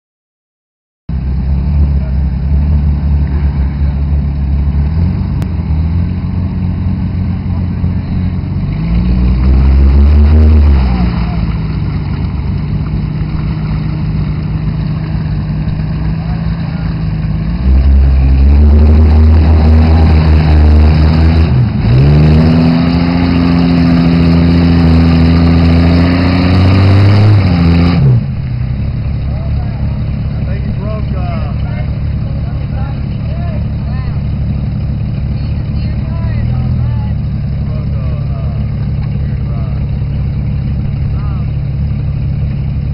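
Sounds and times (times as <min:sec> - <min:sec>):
car engine running at low revs: 0:01.1 - 0:42.9
suv engine revving hard: 0:04.7 - 0:12.0, 0:15.8 - 0:28.4.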